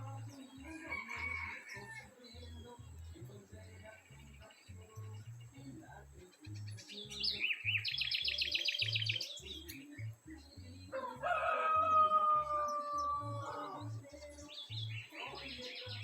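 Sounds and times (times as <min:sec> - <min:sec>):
songbird singing high notes: 0:00.0 - 0:16.0
rooster crowing: 0:00.6 - 0:02.2, 0:10.9 - 0:14.1.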